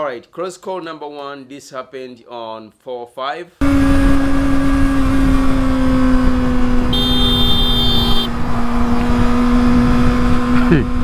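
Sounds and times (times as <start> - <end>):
motorcycle engine drone: 3.6 - 11.0
wind rumble on microphone: 3.6 - 11.0
high-pitched tone: 6.9 - 8.3.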